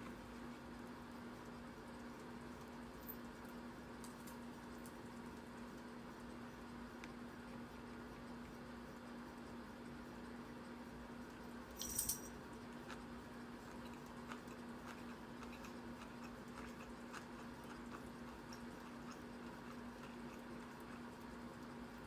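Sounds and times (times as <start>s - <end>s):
low electrical hum: 0.0s - 22.0s
clicks and taps of eating: 12.7s - 21.7s.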